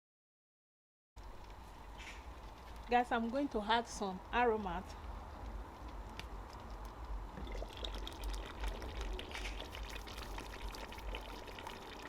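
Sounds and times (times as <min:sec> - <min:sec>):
stew bubbling and popping: 0:05.4 - 0:12.0.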